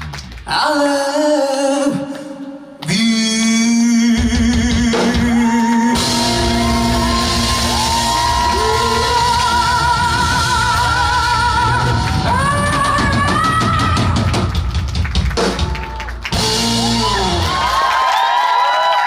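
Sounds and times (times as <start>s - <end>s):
live rock band playing: 4.2s - 17.8s.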